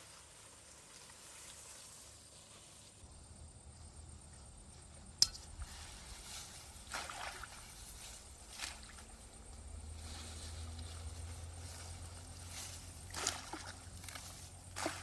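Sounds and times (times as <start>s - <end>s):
water sloshing in stream: 5.6s - 9.3s, 12.2s - 15.0s
short splashes: 6.7s - 9.1s, 13.1s - 15.0s.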